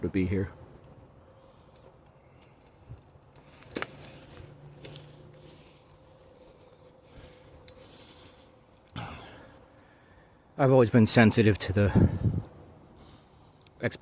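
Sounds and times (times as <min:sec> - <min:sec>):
faint rustling and handling: 0:01.4 - 0:08.9.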